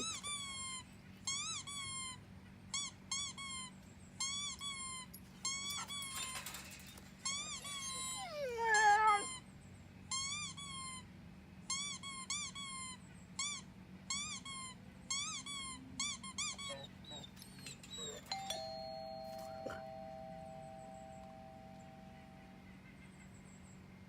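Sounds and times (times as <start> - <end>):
squeaky chirps: 0.0 - 9.4, 11.7 - 20.0
two-note doorbell chime: 18.3 - 22.7.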